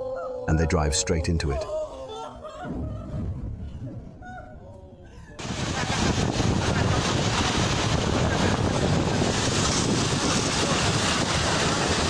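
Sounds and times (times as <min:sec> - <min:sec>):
wind buffeting microphone: 0:05.4 - 0:12.0.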